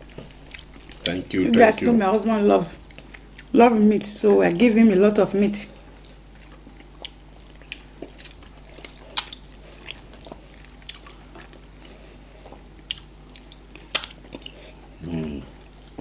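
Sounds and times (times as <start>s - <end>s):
low steady hum: 0.0s - 16.0s
wet chewing and biting sounds: 6.0s - 14.6s.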